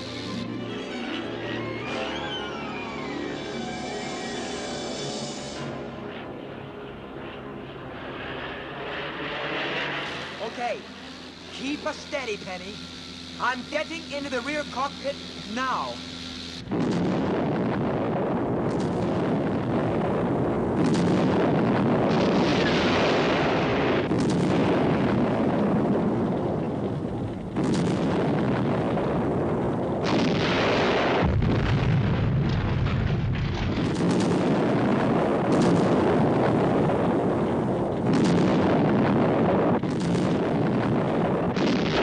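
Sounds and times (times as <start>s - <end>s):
heavy explosions rumbling: 16.6s - 42.0s.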